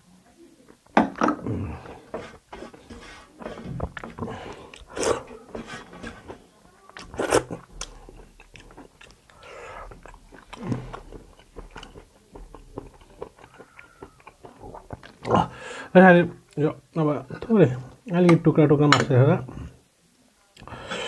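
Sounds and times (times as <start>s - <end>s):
person chewing meat: 1.4s - 15.6s
wet smacking and crunching: 6.9s - 15.5s.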